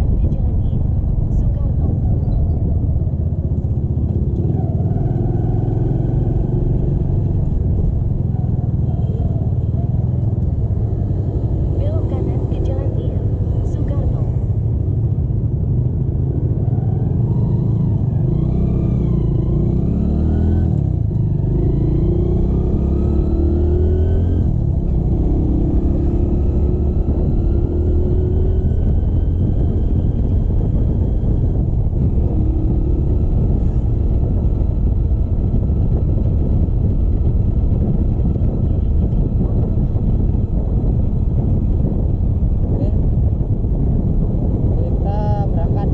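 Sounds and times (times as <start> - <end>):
motorcycle engine accelerating: 0.0 - 45.9
wind rumble on microphone: 0.0 - 45.9.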